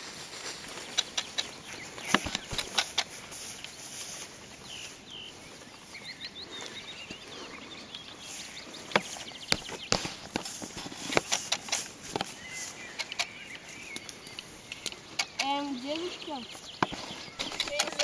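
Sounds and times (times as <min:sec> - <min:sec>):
bird chirping: 0:00.0 - 0:18.0
dry sticks snapping: 0:00.7 - 0:03.8, 0:08.8 - 0:18.0.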